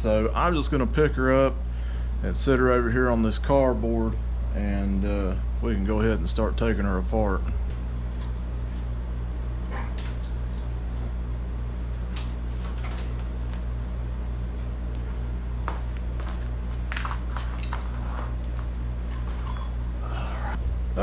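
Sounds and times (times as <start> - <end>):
steady low hum: 0.0 - 21.0
metal knocks and clinks: 17.0 - 18.1.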